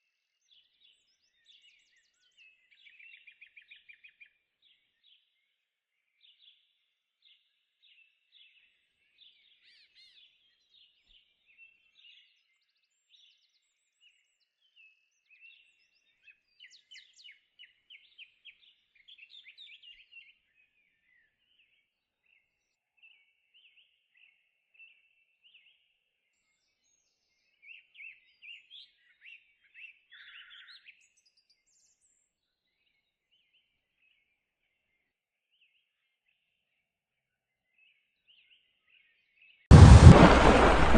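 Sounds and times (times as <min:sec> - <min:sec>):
faint birdsong chirps and trills: 0:00.0 - 0:39.7.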